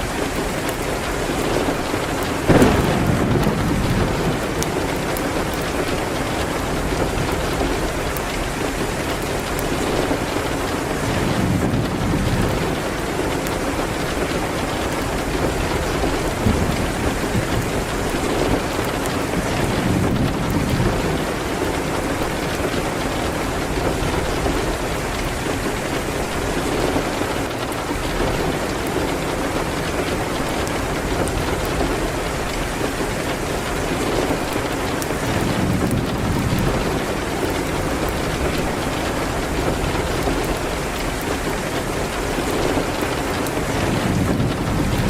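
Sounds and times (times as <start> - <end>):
heavy rain hitting a window: 0.0 - 45.0
fireplace crackling: 0.3 - 17.1.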